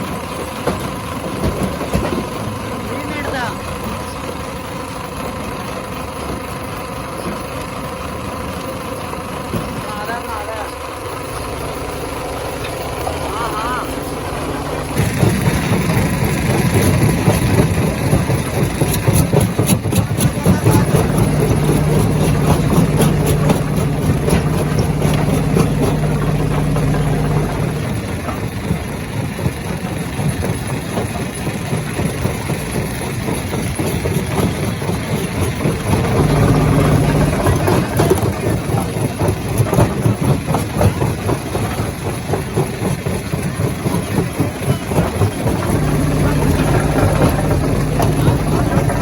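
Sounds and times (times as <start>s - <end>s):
deep machine hum: 10.0s - 18.2s, 20.4s - 28.8s, 35.7s - 38.3s, 45.2s - 49.0s
rocks clattering in crusher: 14.5s - 29.5s, 30.3s - 49.0s.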